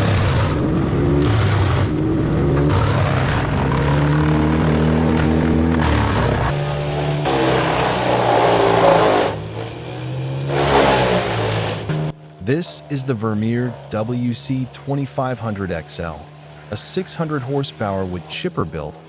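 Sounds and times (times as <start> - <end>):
wood chipper grinding wood: 0.0 - 12.2
wood chipper engine running: 0.0 - 12.5.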